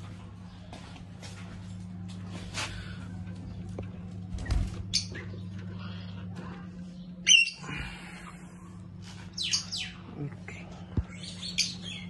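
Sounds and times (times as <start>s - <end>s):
caged birds chirping: 2.5s - 12.0s.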